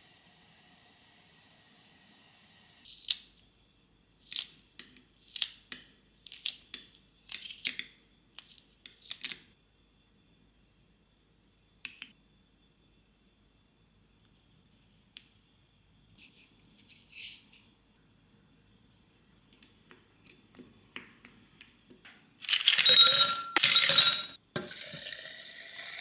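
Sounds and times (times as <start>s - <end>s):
kitchenware clinking: 22.4s - 25.2s.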